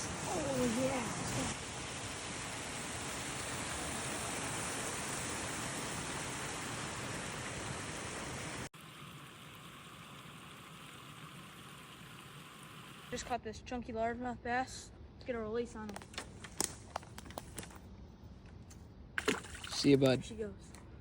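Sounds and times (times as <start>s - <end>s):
flowing creek water: 0.0s - 13.4s, 19.2s - 20.3s.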